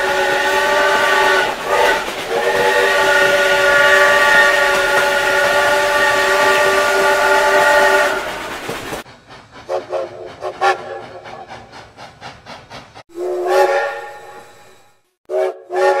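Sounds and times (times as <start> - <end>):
steam whistle blast: 0.0 - 8.6, 13.1 - 16.0
steam hissing: 0.0 - 16.0
brief whistle chirps: 13.2 - 16.0.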